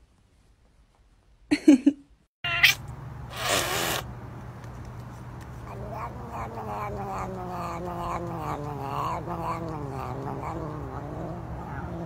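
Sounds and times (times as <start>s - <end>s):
cat yowling: 2.4s - 2.8s, 5.7s - 12.0s.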